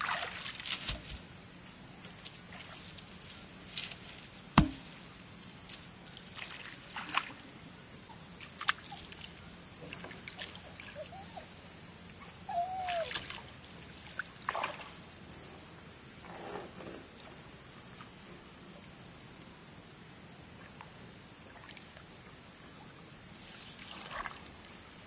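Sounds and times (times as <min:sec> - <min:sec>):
water splashing and trickling: 0:00.0 - 0:01.2, 0:02.2 - 0:03.8, 0:05.8 - 0:15.2, 0:21.4 - 0:25.0
sharp knock: 0:04.6 - 0:04.9
bird chirps: 0:14.9 - 0:16.1.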